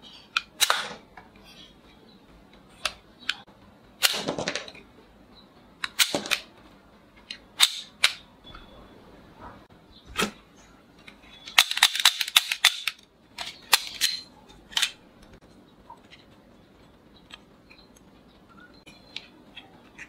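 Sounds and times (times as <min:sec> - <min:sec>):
toy revolver plastic clicks: 0:11.5 - 0:15.0.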